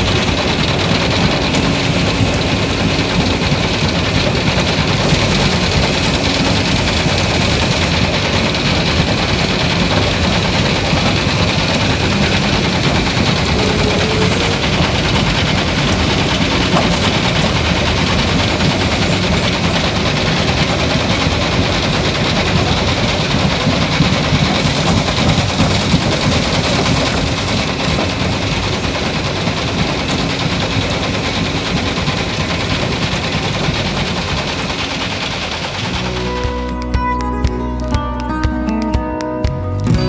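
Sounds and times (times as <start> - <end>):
small motor rattling: 0.0 - 36.8.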